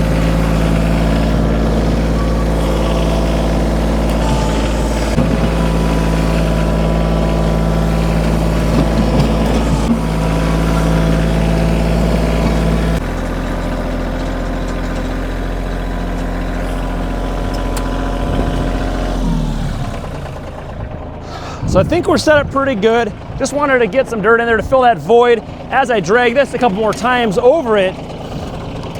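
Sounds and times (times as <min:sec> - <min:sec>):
implement dragging over gravel: 0:00.0 - 0:20.8
diesel tractor engine running: 0:00.0 - 0:28.9.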